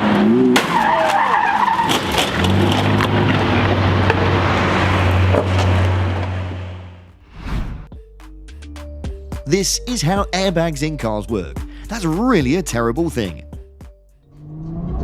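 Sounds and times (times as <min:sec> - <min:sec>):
car engine drone: 0:00.0 - 0:07.2, 0:14.2 - 0:15.0
tyre squeal: 0:00.3 - 0:02.6.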